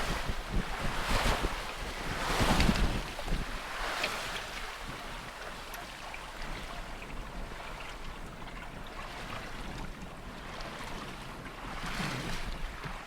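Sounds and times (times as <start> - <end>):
wave washing past: 0.0 - 9.8
water splashing along hull: 0.0 - 13.0.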